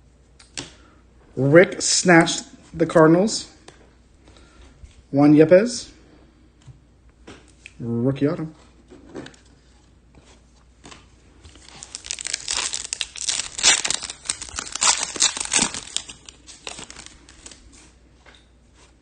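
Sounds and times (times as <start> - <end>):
foil wrapper crinkling: 11.5 - 17.7.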